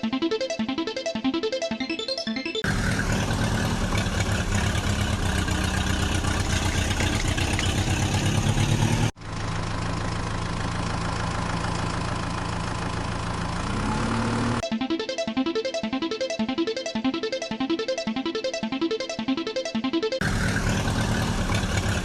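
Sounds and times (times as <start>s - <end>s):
diesel engine throbbing: 2.6s - 14.6s, 20.2s - 22.0s
steady engine hum: 2.6s - 14.6s, 20.2s - 22.0s.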